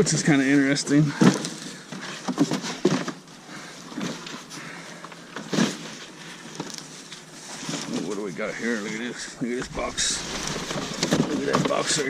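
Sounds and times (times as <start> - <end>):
cardboard boxes rustling and knocking: 1.1 - 4.5, 9.8 - 12.0.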